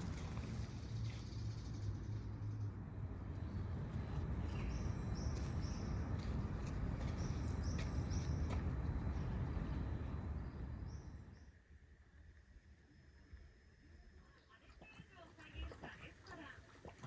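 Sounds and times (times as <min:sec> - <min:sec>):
small birds chirping: 0:00.0 - 0:11.5
steady low rumble: 0:00.0 - 0:11.5.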